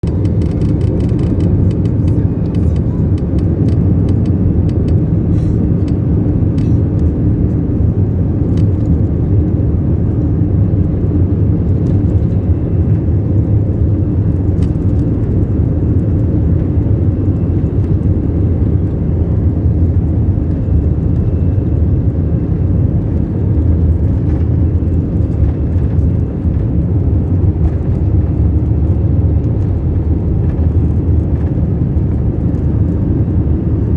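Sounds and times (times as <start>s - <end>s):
rattling clicks: 0.0s - 5.0s
jet engines rumbling: 0.0s - 33.9s.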